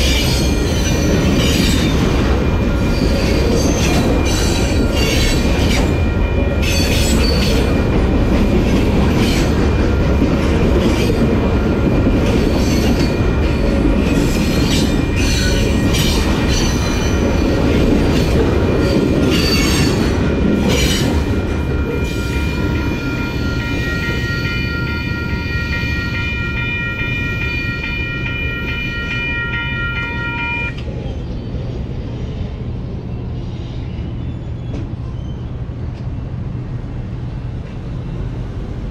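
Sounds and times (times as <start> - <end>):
train rumbling by: 0.0 - 38.9
locomotive air horn: 26.2 - 30.8.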